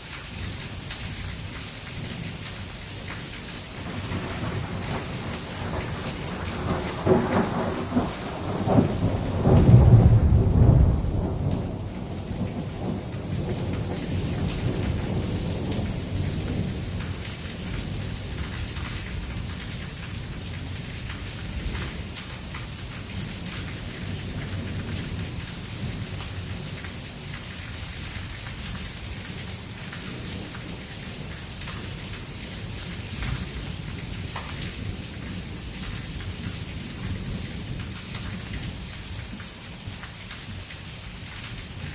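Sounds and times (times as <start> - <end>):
heavy rain: 0.0 - 41.9
thunder rumbling: 3.7 - 17.0.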